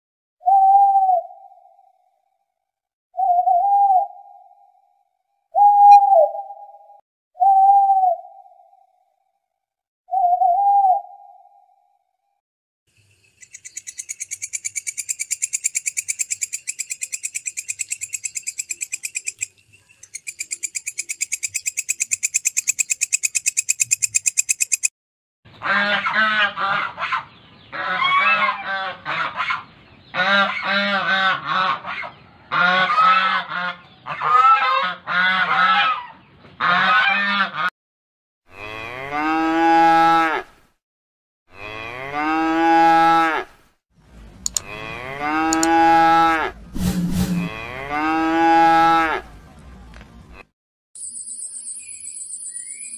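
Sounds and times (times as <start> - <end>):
cow mooing: 41.5 - 43.5, 44.6 - 46.6, 47.4 - 49.3.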